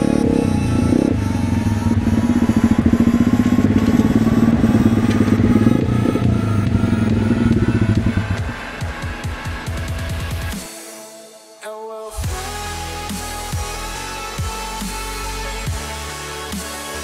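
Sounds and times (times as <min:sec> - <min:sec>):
motorcycle engine running hard: 0:00.0 - 0:10.6.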